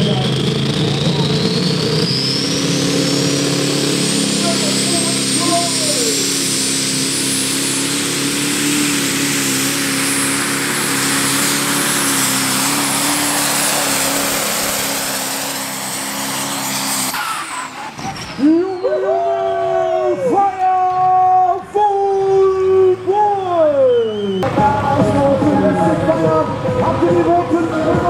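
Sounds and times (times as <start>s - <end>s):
diesel engine running under load: 0.0s - 20.1s, 22.4s - 28.0s
high steady whine: 0.0s - 20.5s.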